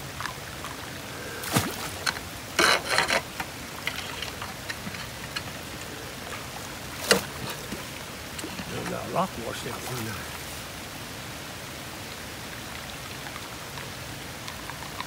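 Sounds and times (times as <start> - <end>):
rain hiss: 0.0 - 15.0
water running in a ditch: 0.0 - 15.0
sharp knocks and scrapes: 1.5 - 5.6.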